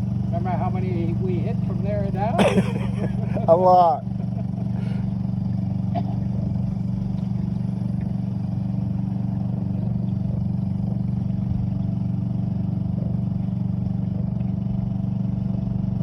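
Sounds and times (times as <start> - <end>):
small outboard motor running: 0.0 - 16.0.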